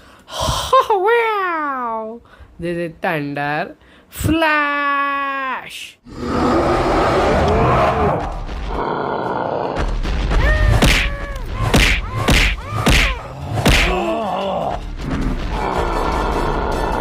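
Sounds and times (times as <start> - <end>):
music: 7.9 - 8.9, 9.8 - 17.0.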